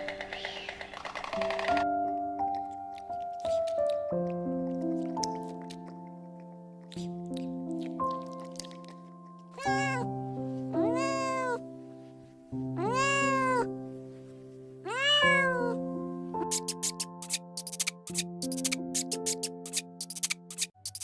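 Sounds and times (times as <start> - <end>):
background music with held notes: 0.0 - 21.0
cat meowing: 9.6 - 11.6, 12.7 - 13.7, 14.8 - 15.8
quick ticking: 16.5 - 21.0.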